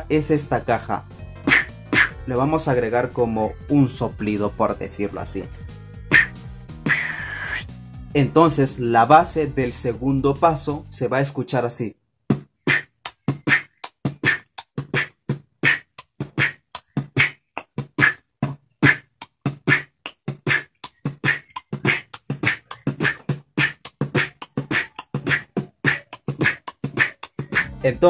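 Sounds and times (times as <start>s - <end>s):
beatboxing: 0.0s - 2.5s, 6.1s - 7.8s, 12.3s - 28.0s.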